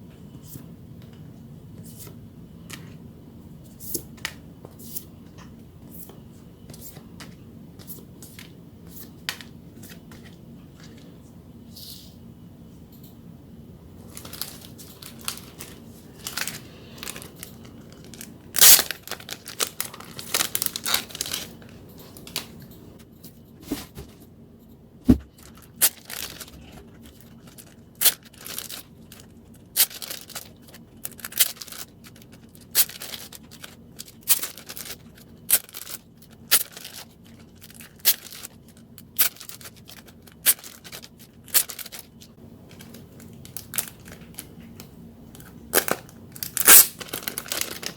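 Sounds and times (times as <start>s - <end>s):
plastic packaging crinkling: 14.0s - 22.6s, 25.2s - 47.9s.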